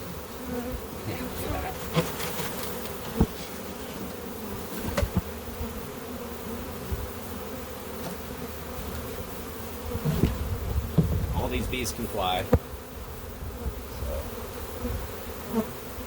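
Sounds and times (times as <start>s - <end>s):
bee swarm buzzing: 0.0s - 16.0s.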